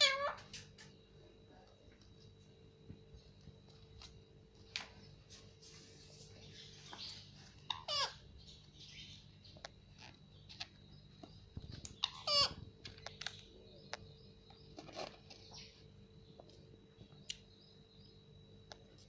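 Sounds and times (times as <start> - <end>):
parrot calling: 0.0 - 0.5, 6.9 - 9.2, 11.8 - 14.0.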